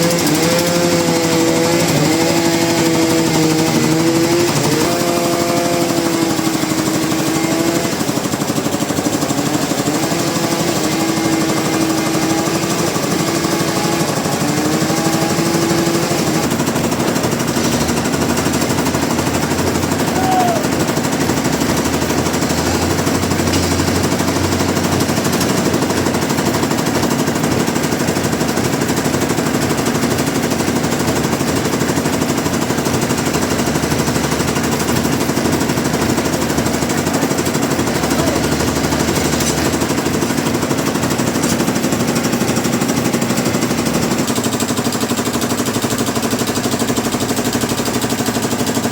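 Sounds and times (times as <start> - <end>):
sawmill machinery rattling: 0.0 - 48.9
low machinery hum: 16.4 - 44.2.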